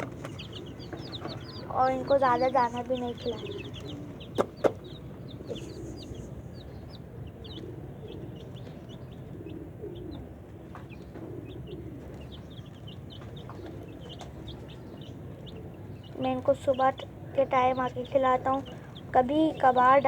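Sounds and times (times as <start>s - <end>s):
chicks peeping: 0.0s - 20.0s
hen clucking: 0.0s - 20.0s
sharp knocks: 4.4s - 4.8s.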